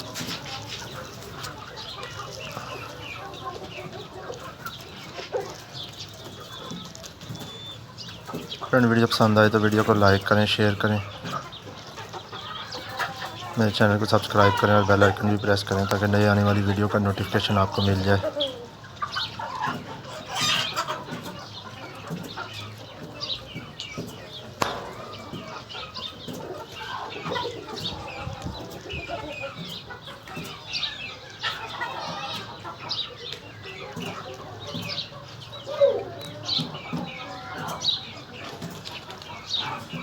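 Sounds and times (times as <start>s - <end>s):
chickens clucking and calling: 0.0s - 40.0s.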